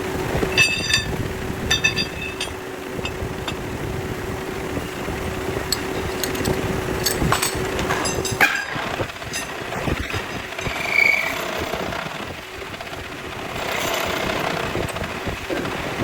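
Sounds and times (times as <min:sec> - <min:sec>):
machinery humming: 0:00.0 - 0:16.0
metallic clinks: 0:00.5 - 0:03.2.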